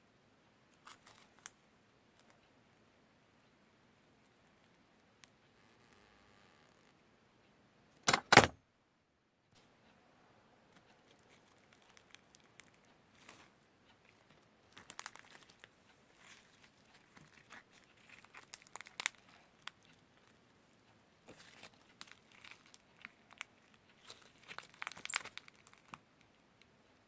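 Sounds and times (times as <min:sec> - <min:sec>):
dry material crinkling: 0:00.8 - 0:01.6, 0:10.8 - 0:20.5, 0:21.3 - 0:26.4.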